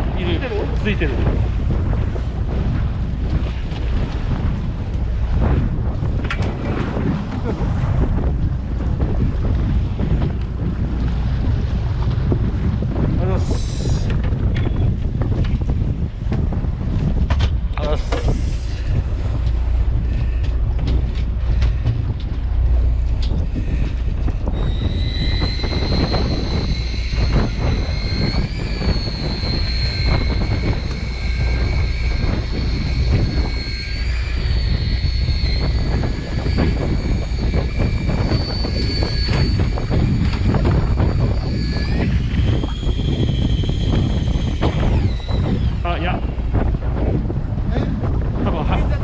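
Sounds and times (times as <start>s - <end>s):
boat engine drone: 0.0s - 49.0s
wind buffeting microphone: 0.0s - 49.0s
high motor whine: 17.5s - 48.3s.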